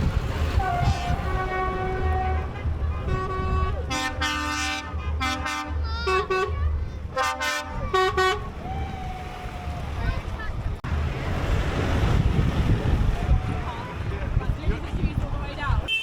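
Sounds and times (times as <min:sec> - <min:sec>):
engines rumbling: 0:00.0 - 0:16.0
truck horn blasts: 0:00.5 - 0:08.5.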